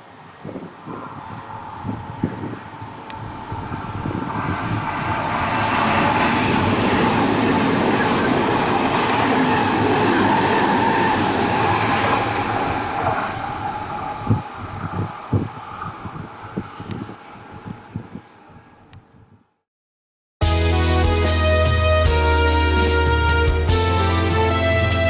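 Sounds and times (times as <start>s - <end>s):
train rail noise: 0.0s - 19.0s.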